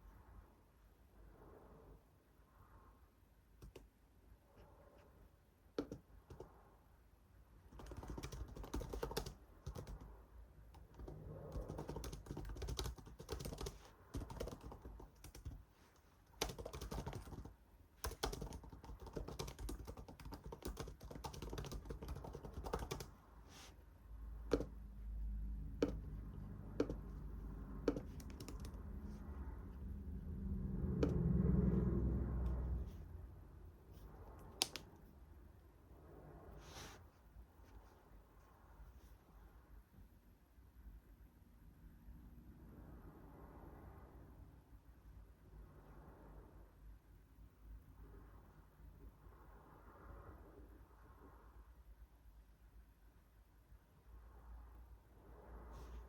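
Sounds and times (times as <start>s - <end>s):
computer keyboard typing: 5.8s - 6.5s, 7.7s - 10.1s, 10.7s - 15.6s, 16.3s - 23.2s, 24.5s - 24.8s, 25.8s - 26.1s, 26.7s - 27.2s, 27.8s - 28.9s
low rumble: 28.7s - 33.7s.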